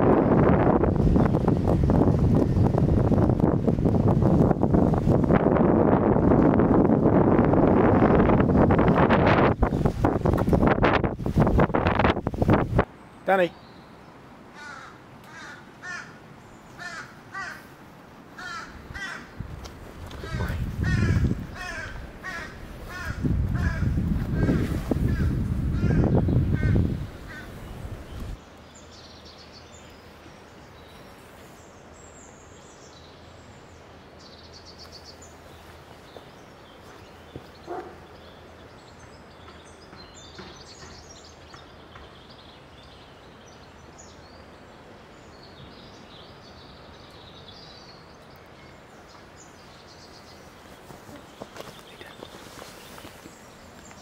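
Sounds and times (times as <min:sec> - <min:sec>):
small birds chirping: 0:18.4 - 0:54.0.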